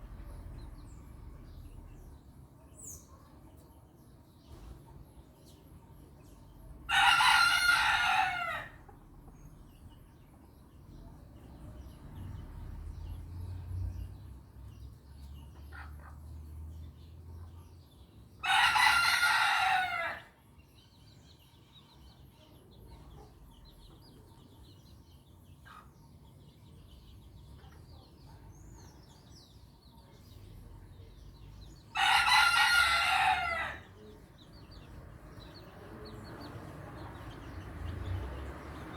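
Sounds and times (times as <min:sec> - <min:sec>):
chicks peeping: 0:02.8 - 0:19.9, 0:20.6 - 0:38.9
rooster crowing: 0:06.9 - 0:08.8, 0:18.4 - 0:20.3, 0:31.9 - 0:34.0.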